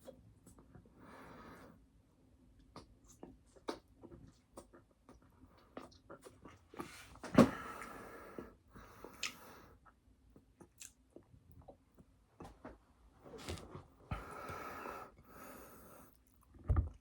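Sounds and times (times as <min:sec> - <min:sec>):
chewing and mouth clicks: 0:02.6 - 0:06.9, 0:10.6 - 0:11.8.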